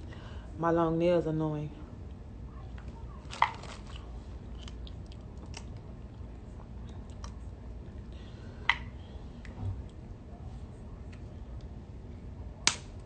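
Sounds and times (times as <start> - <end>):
person chewing: 3.6 - 7.4.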